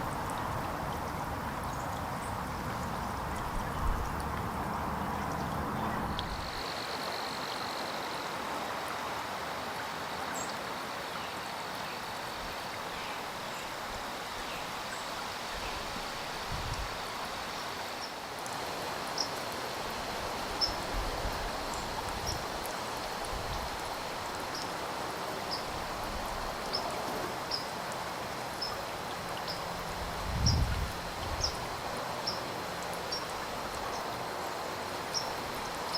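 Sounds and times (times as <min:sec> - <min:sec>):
outdoor hiss: 0:00.0 - 0:35.9.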